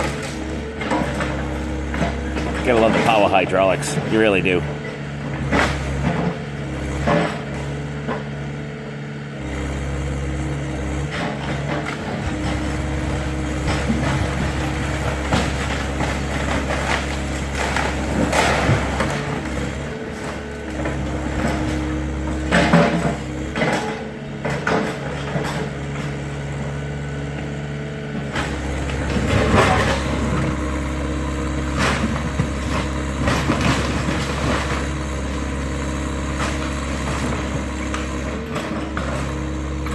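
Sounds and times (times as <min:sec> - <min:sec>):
excavator engine running: 0:00.0 - 0:39.9
hydraulics working: 0:00.0 - 0:39.9
wood cracking and crashing: 0:11.2 - 0:26.2, 0:28.3 - 0:39.9.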